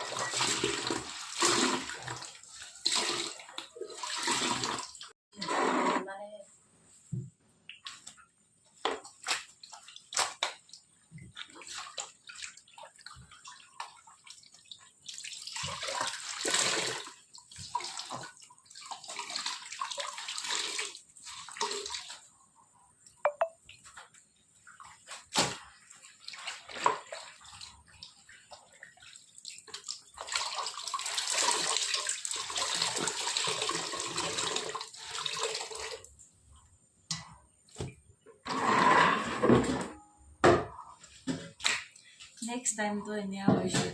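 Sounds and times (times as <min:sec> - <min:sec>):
water pouring and splashing: 0:00.0 - 0:05.2, 0:08.8 - 0:22.4, 0:23.6 - 0:36.2.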